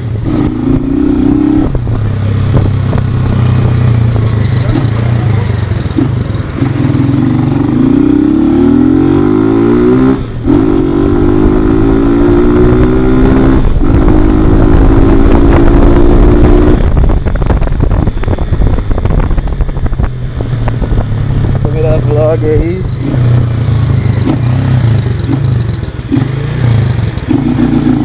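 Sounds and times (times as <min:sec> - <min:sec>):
motorcycle engine accelerating: 0:00.0 - 0:28.0
rough wind noise: 0:00.0 - 0:28.0.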